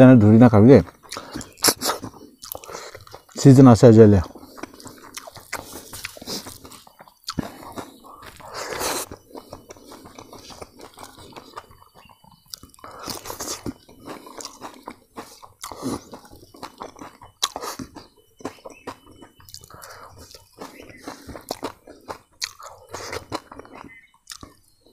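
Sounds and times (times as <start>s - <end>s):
crunchy chewing: 0.0s - 24.9s
wet mouth clicks: 0.9s - 3.4s, 4.2s - 18.0s, 19.2s - 24.6s
smacking bites: 4.6s - 24.6s.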